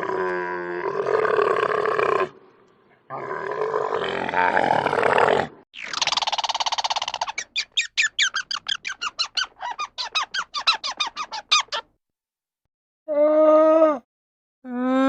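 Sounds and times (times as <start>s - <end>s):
animal squeaking: 5.8s - 11.9s.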